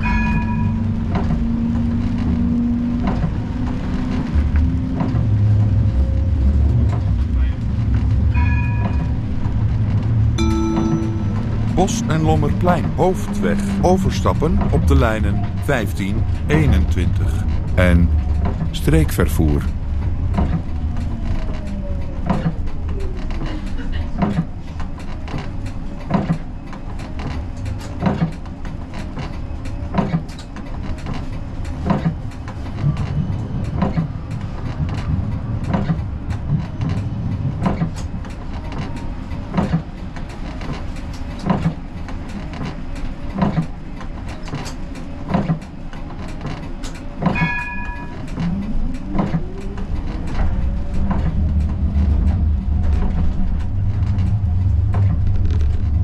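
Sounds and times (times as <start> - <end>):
tram low hum: 0.0 - 56.0
short beep: 10.4 - 12.3.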